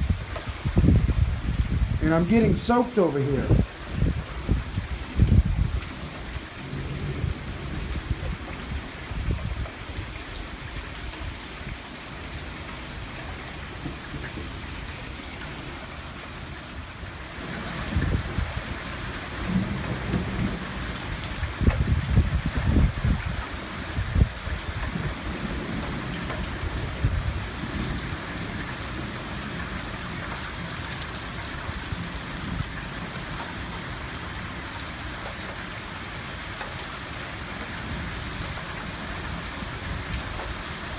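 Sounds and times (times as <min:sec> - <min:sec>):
heavy rain pouring: 0:00.0 - 0:40.9
rolling thunder: 0:03.5 - 0:09.5.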